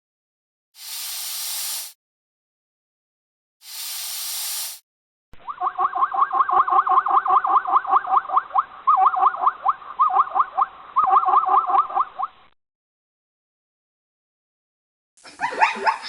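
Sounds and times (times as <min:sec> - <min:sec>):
animal chirping: 0:05.4 - 0:12.4.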